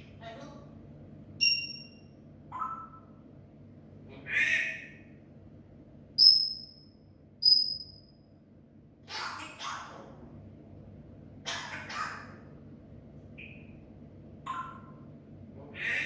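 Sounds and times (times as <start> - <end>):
parrot squawking: 4.2 - 5.0, 9.1 - 10.2, 11.4 - 12.5, 15.7 - 16.0.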